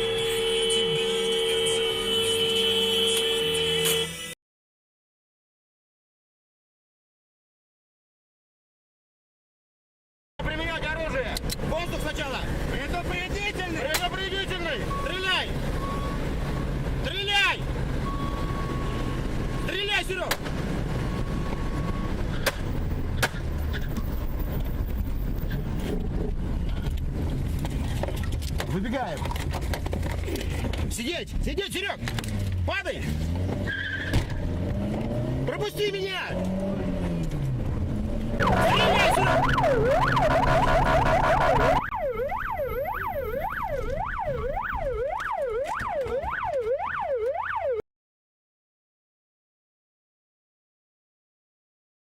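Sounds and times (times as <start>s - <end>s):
road noise: 0.0s - 4.4s, 10.4s - 47.8s
vehicle engine rumble: 10.4s - 47.6s
emergency vehicle siren yelping: 17.5s - 20.0s, 21.0s - 22.8s, 38.4s - 47.8s.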